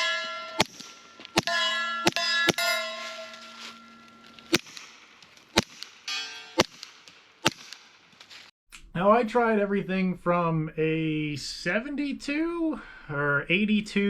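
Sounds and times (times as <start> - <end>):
sharp metallic strikes ringing: 0.0 - 8.1.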